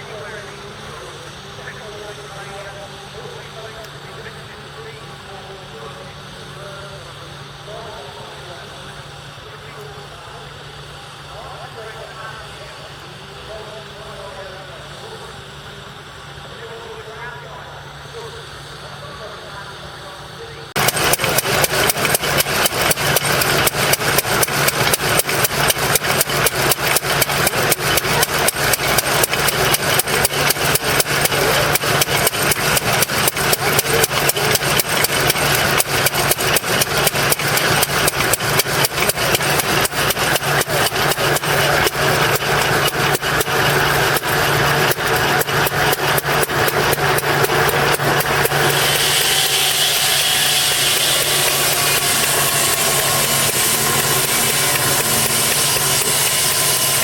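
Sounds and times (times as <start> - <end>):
engine running with pulsing beat: 20.7 - 57.0.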